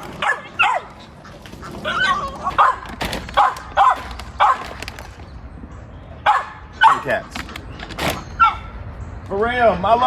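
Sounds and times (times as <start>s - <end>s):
dog barking: 0.2s - 1.0s, 1.8s - 4.7s, 6.2s - 7.2s, 8.4s - 8.7s.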